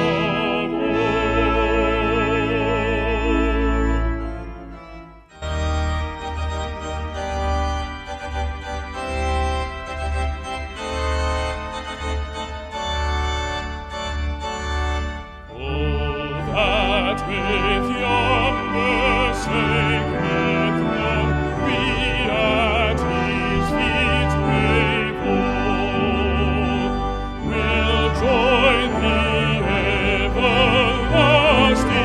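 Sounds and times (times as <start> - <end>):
baritone voice singing: 0.0 - 4.2, 15.5 - 32.0
brass ensemble playing a hymn: 0.0 - 32.0.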